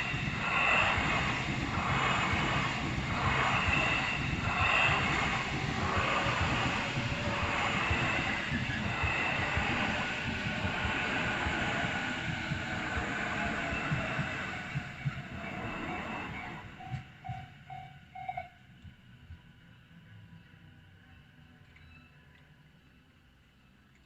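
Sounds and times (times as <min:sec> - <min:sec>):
electric train rumbling past: 0:00.0 - 0:21.4.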